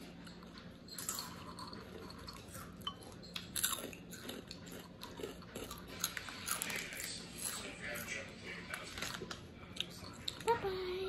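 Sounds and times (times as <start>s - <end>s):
crisp snack crunching: 3.4s - 10.4s.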